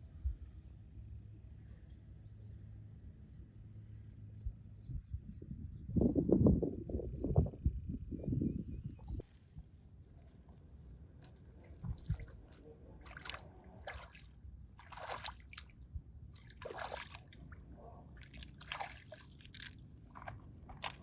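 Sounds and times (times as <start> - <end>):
water splashes and drips: 11.2 - 21.0.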